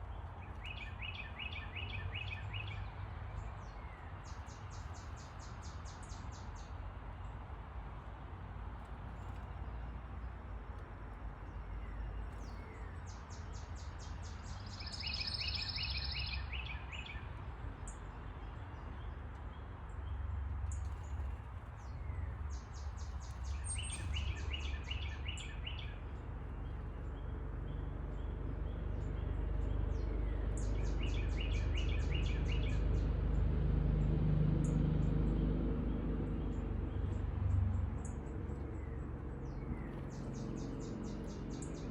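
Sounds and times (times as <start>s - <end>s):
songbird trilling: 14.5s - 17.2s.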